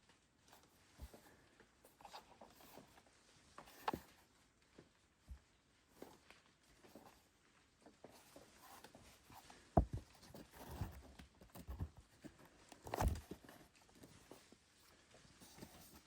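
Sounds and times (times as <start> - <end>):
dull thumps and knocks: 9.7 - 13.5.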